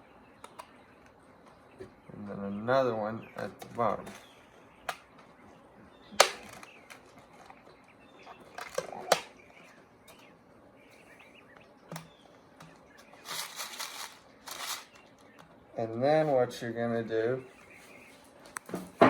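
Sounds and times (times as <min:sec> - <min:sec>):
plastic rustling: 0:12.8 - 0:15.4.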